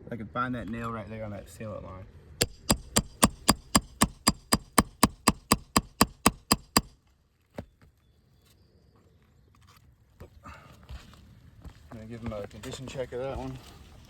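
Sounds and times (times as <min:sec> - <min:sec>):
hammer tapping: 0:02.4 - 0:06.9.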